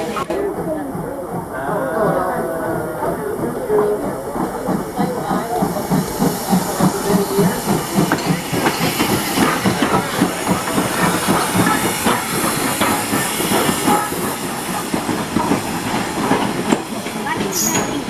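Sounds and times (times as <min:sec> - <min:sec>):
steam train rhythmic beat: 0:00.0 - 0:18.0
hiss of steam: 0:04.7 - 0:18.0.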